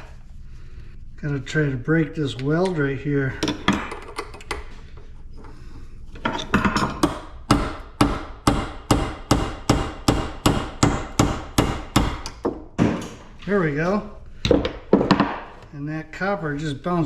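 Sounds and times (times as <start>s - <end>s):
hammer striking metal: 6.7s - 13.2s.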